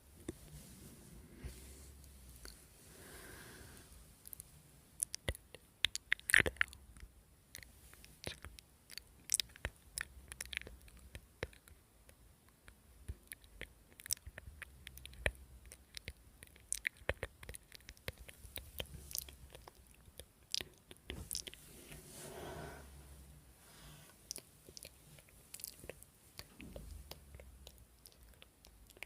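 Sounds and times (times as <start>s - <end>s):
mouth crackles and pops: 4.2s - 21.6s, 24.3s - 29.0s
chewing: 5.0s - 6.8s, 7.5s - 11.8s, 13.2s - 21.6s, 24.3s - 29.0s.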